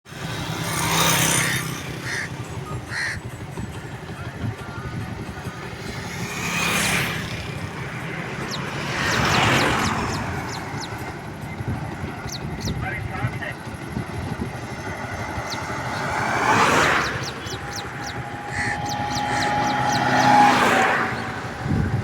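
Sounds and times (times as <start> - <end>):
motorcycle engine running: 0.1 - 22.0
crow cawing: 1.4 - 3.4, 15.4 - 20.8.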